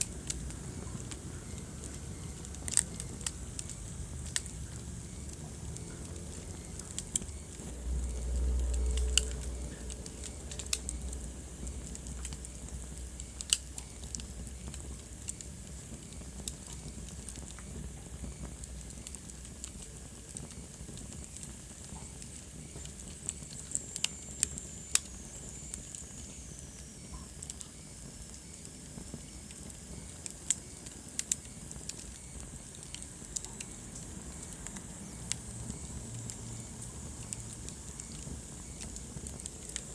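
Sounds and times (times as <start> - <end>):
wood fire crackling and popping: 0.0 - 39.9
low rumble: 0.2 - 13.2.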